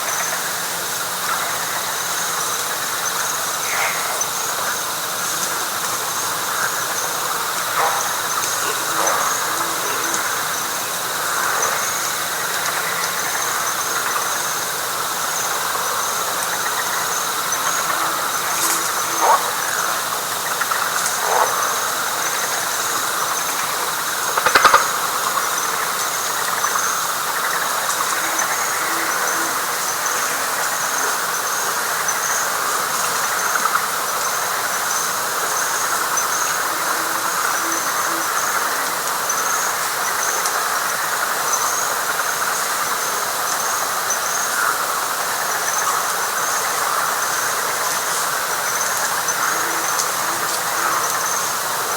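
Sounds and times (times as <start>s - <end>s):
frogs and insects chorus: 0.0s - 51.9s
insect rapid pulsing call: 0.0s - 51.9s
faint low hoots: 3.6s - 12.0s.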